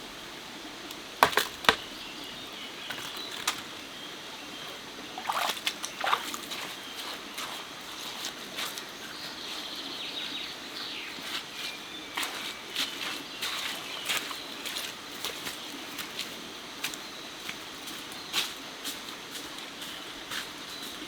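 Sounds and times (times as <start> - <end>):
running water hiss: 0.0 - 21.0
water splashing: 5.1 - 7.6.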